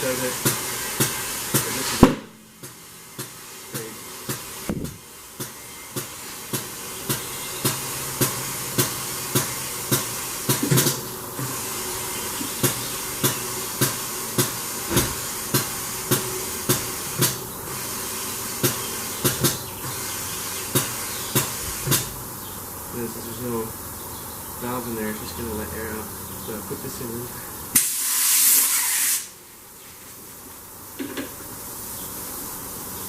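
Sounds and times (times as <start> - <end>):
compressed air hissing: 0.0 - 26.4, 27.2 - 33.0.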